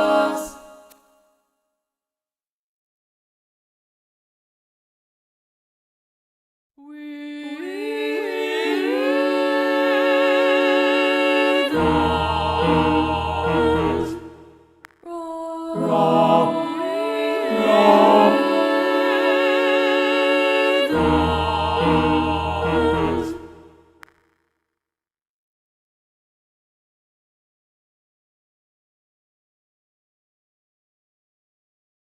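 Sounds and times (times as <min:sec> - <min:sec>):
choir singing sustained chords: 0:00.0 - 0:00.9, 0:06.9 - 0:14.6, 0:15.4 - 0:23.9.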